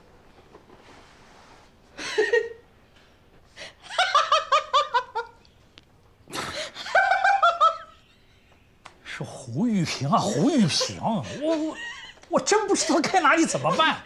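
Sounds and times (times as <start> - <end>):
person laughing: 10.2 - 12.3.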